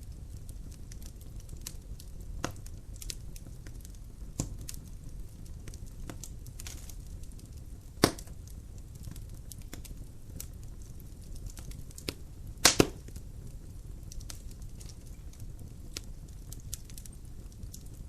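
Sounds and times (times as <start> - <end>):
logs crackling and popping: 0.0 - 18.0
low rumble of flames: 0.0 - 18.0.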